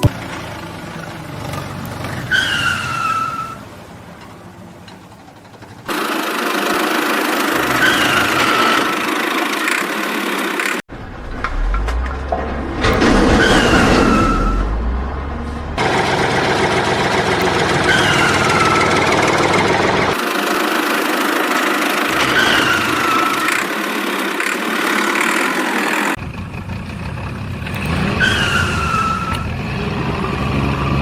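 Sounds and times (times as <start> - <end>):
engine running: 0.0 - 31.0
short falling tone: 10.9 - 15.8.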